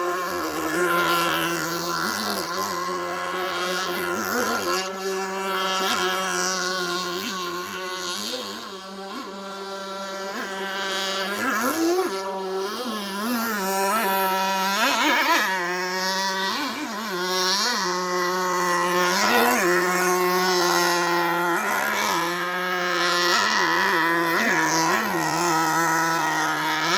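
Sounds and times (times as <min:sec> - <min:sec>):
small nitro engine revving: 0:00.0 - 0:26.9.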